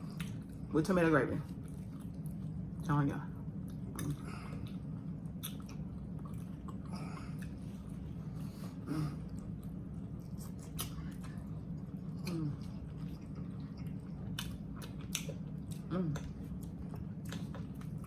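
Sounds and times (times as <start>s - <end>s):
people chewing food: 0.0s - 18.0s
steady low hum: 0.0s - 18.0s.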